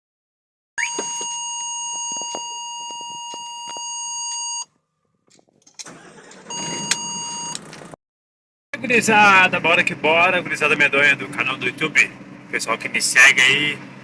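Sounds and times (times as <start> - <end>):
electronic beep tone: 0.8 - 4.7, 6.5 - 7.6.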